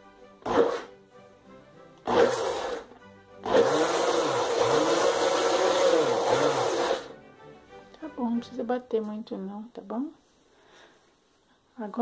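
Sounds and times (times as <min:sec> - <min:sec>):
blender running: 0:00.4 - 0:00.9, 0:02.0 - 0:07.1.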